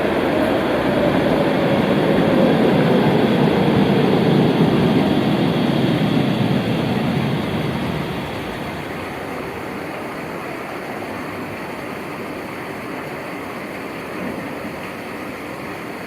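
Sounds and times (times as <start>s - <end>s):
tram motor whine: 0.0s - 11.2s
tram wheels rumbling on rails: 0.0s - 16.0s.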